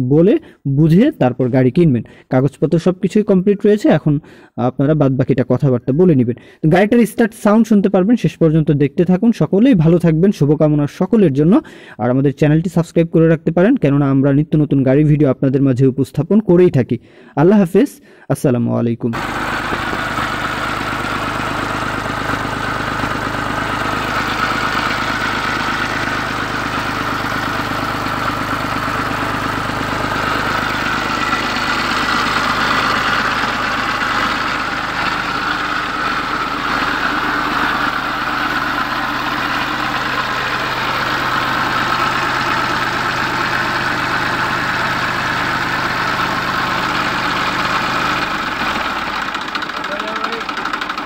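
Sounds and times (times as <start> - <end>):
tractor diesel engine idling: 19.2 - 51.0.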